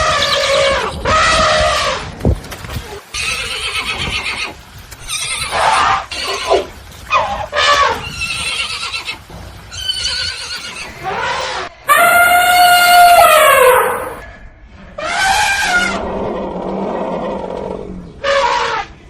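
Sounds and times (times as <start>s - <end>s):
horses neighing: 3.0s - 14.2s.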